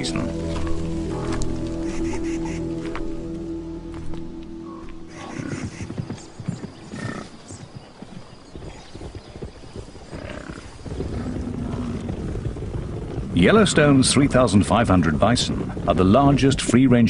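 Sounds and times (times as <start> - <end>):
hooves thudding: 0.0 - 17.0
bison grunting: 4.6 - 5.9, 10.2 - 14.3.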